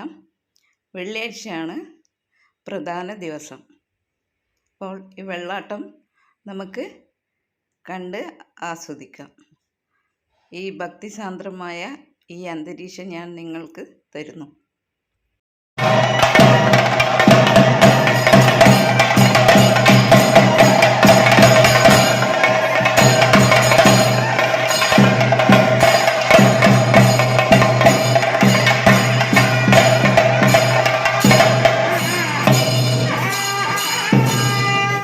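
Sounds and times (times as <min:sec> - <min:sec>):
cymbal clashes: 0:15.8 - 0:35.0
fast loud drumming: 0:15.8 - 0:35.0
steady held tone: 0:15.8 - 0:35.0.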